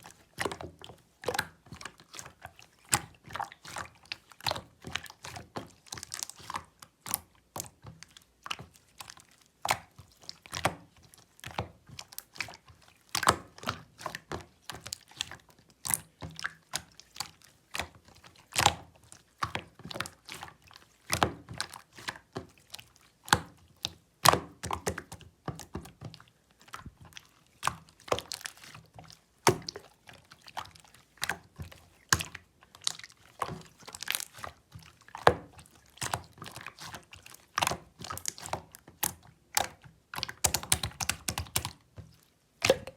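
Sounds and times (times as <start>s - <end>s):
slime squished by hand: 1.2s - 42.9s.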